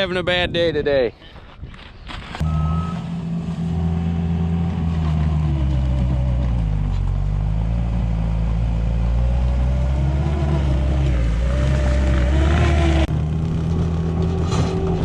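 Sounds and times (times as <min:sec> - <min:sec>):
skid steer engine running: 0:02.4 - 0:15.0.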